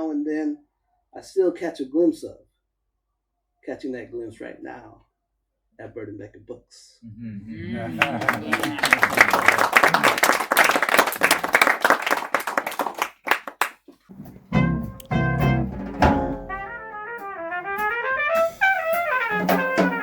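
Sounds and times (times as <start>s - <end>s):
audience applause: 7.7s - 13.8s
bass line: 14.1s - 20.0s
horn playing a melody: 14.4s - 20.0s.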